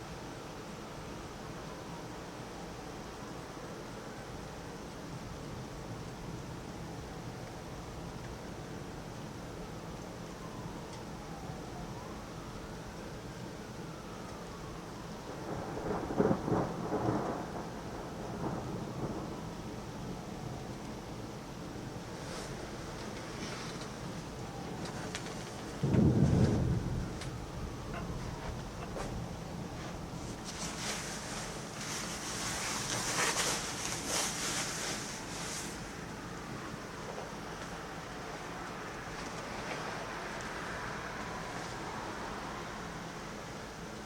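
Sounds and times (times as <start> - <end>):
steady rain: 0.0 - 44.0
thunder rumbling: 15.0 - 34.1.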